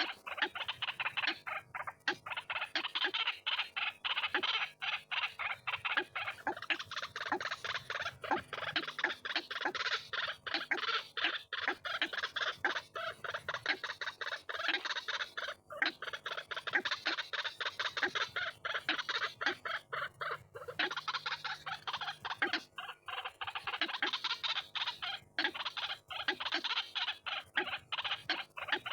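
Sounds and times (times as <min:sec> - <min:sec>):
waterhen calling: 0:00.0 - 0:28.9.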